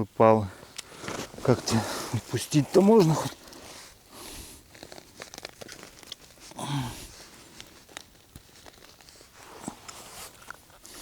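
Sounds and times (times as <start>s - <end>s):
small clicks and light rustles: 4.6s - 6.6s, 7.2s - 11.0s
person grunting: 6.6s - 7.1s.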